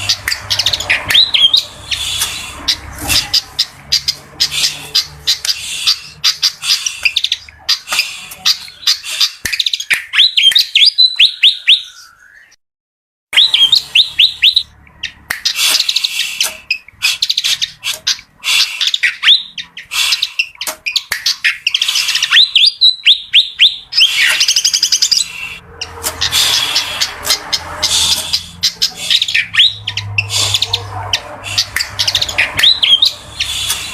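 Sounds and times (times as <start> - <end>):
bird chattering chirps: 0.0 - 12.6, 13.4 - 33.9
bird whistled notes: 4.5 - 12.6.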